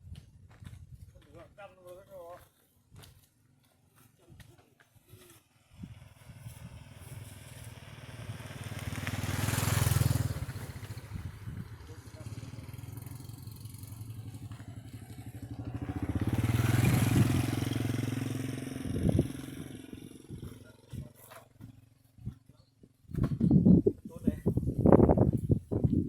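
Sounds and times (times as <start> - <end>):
small engine running: 5.3 - 22.2.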